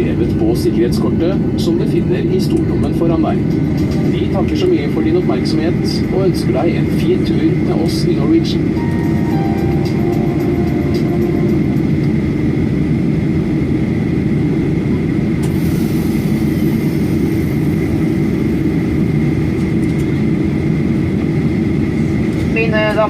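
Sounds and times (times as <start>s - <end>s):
aircraft cabin engine rumble: 0.0s - 23.0s
hiss of air: 15.4s - 18.6s.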